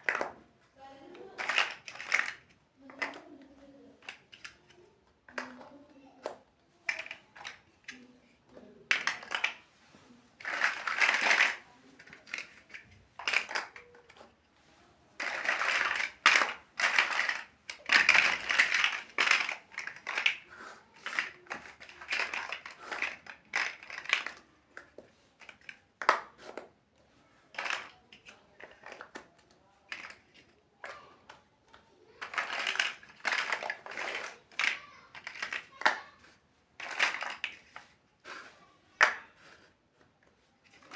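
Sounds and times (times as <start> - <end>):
plastic blocks clicking: 0.0 - 9.8, 10.4 - 14.4, 15.2 - 26.7, 27.5 - 40.9
plastic pieces rustling: 1.0 - 3.3, 6.8 - 8.1, 8.9 - 14.4, 15.2 - 26.7, 27.5 - 31.2, 32.1 - 39.6.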